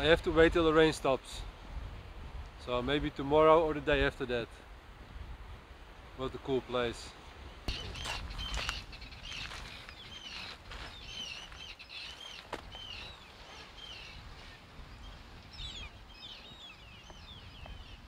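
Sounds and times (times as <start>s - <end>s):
birds calling: 7.4s - 18.0s.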